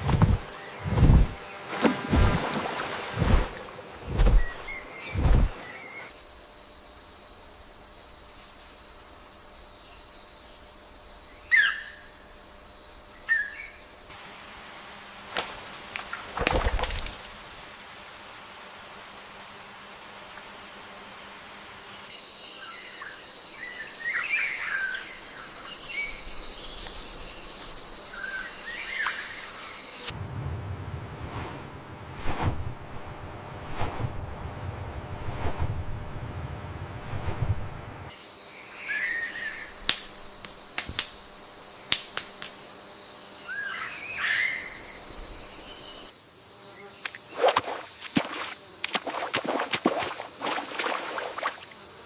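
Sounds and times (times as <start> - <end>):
high insect drone: 0.0 - 30.2, 38.1 - 52.0
birds chirping: 4.3 - 6.1.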